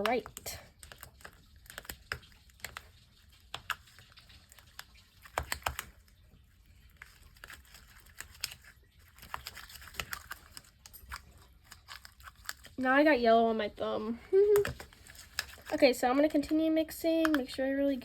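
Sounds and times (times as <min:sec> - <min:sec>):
spatula stirring slime: 0:00.0 - 0:18.0.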